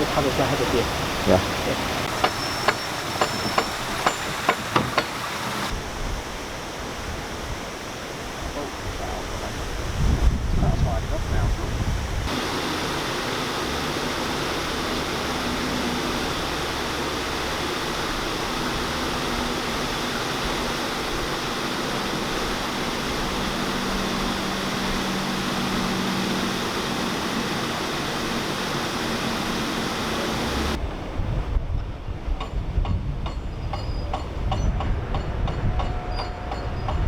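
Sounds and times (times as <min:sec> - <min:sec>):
water rushing through lock paddles: 0:00.0 - 0:37.0.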